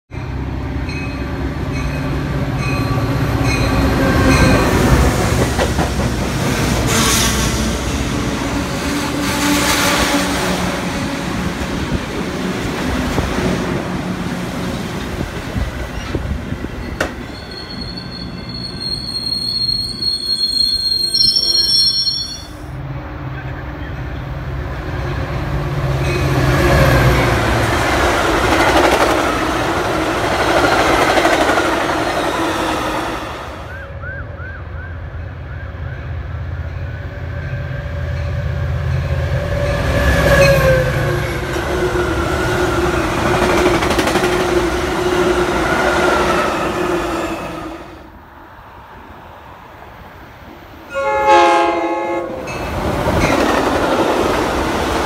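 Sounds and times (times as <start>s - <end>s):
train wheels rumbling on rail: 0.2s - 21.3s, 22.5s - 48.1s, 48.7s - 55.0s
high wheel squeal: 16.8s - 22.7s.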